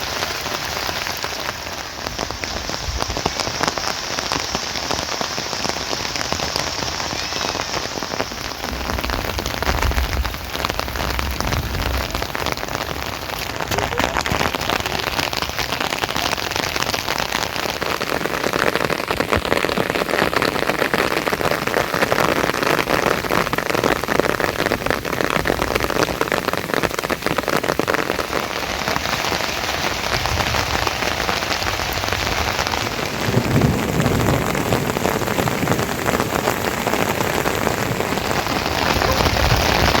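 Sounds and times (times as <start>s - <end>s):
steady rain pattering: 0.0s - 40.0s
low rumble: 8.3s - 14.8s.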